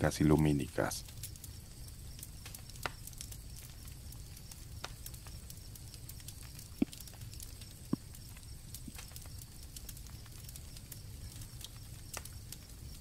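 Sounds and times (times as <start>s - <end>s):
campfire crackling: 0.0s - 13.0s
crickets chirping: 0.0s - 13.0s.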